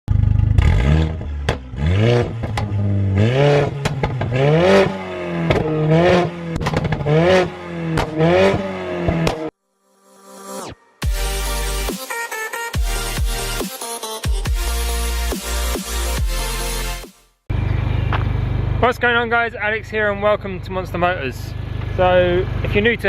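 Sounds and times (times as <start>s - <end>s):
car engine revving: 0.1s - 9.6s
exhaust cracks and pops: 3.7s - 4.4s, 5.4s - 7.2s, 7.9s - 8.2s.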